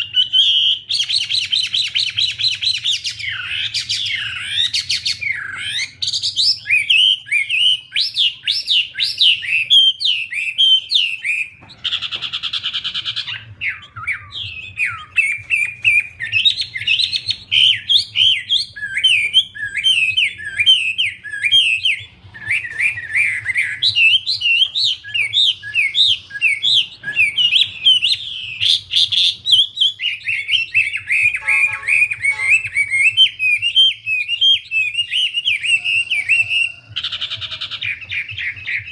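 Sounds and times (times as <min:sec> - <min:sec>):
songbird warbling chirps: 0:00.0 - 0:38.9
harsh buzzy bird note: 0:31.2 - 0:33.0.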